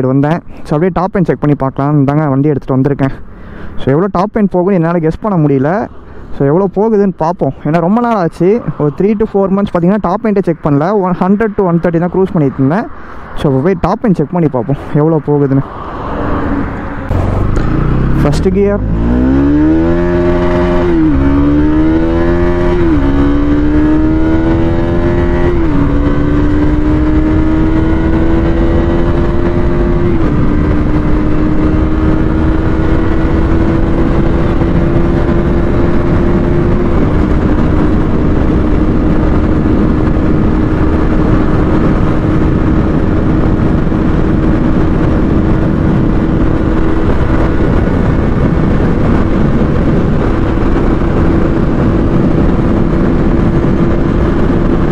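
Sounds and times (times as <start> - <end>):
wind rush: 3.0 - 54.9
motorcycle engine accelerating: 15.4 - 54.9.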